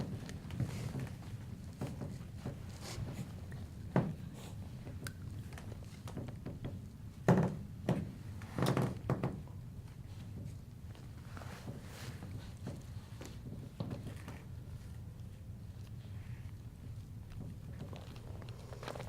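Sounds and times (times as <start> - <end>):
dull thuds and knocks: 6.1 - 9.5.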